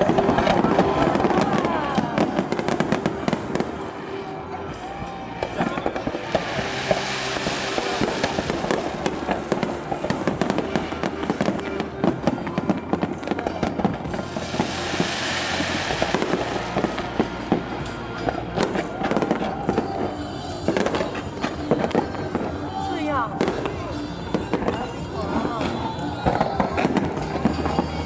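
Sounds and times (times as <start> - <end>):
fireworks crackling: 0.0 - 28.0
firework shell bursts: 5.4 - 20.0.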